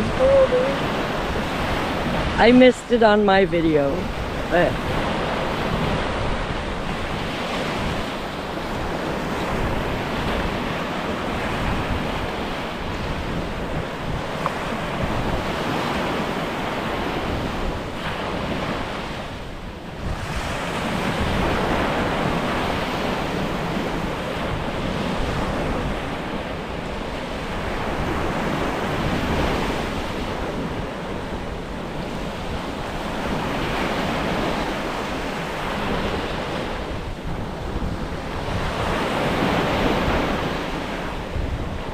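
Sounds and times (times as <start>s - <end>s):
waves washing in: 0.0s - 41.9s
wind buffeting microphone: 0.0s - 41.9s.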